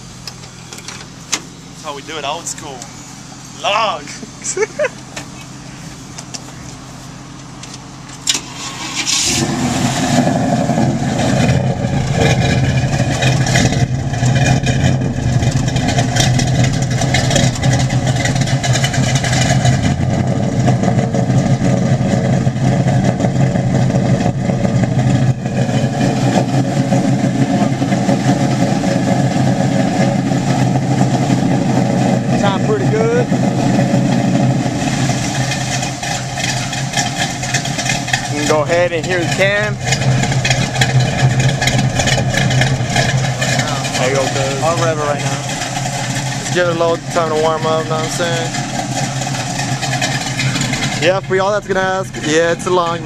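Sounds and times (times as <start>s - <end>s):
engine starting and idling: 0.0s - 53.0s.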